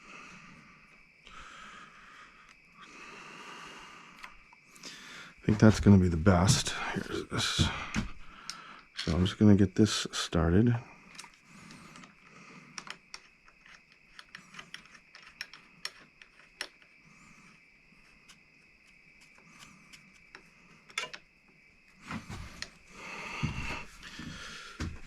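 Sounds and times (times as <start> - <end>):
rustling and knocking of parts: 5.5 - 8.3, 11.1 - 16.9, 20.3 - 21.3, 22.0 - 22.8
small metallic clicks and taps: 12.8 - 16.9, 20.3 - 21.3.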